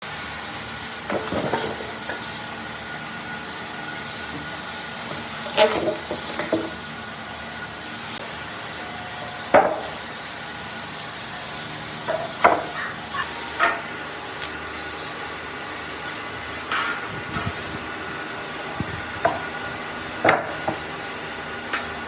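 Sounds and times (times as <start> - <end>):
steady hiss of rubbing wood: 0.0 - 22.0
sharp knocks: 12.1 - 12.9, 20.2 - 20.8.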